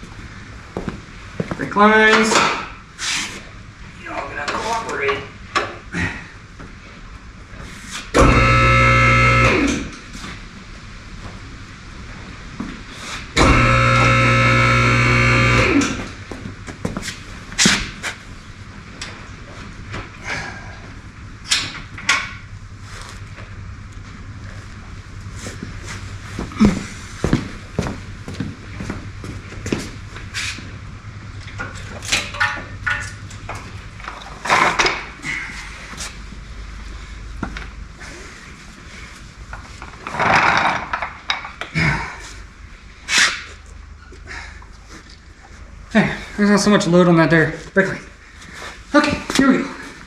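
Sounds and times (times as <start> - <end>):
low hum: 5.3 - 40.2
motor running: 8.2 - 9.9, 13.4 - 16.2
metallic knocks and clanks: 31.6 - 33.4.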